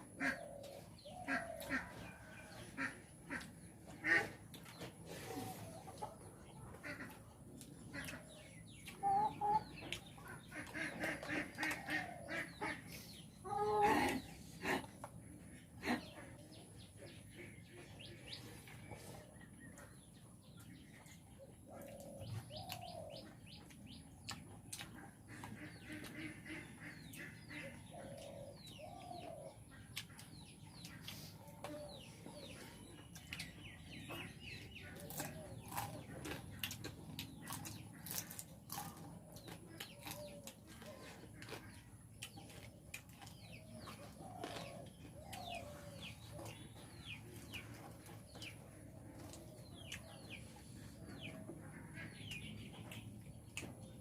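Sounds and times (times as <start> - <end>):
fowl clucking: 0.0 - 14.8
people chewing: 0.2 - 17.3, 18.0 - 54.0.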